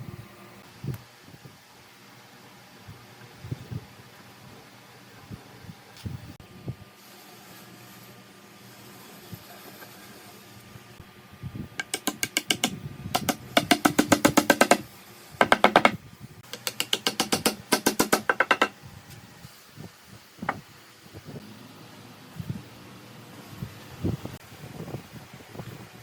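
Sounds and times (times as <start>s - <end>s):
rapid sharp knocking: 11.8s - 14.8s, 15.4s - 18.8s.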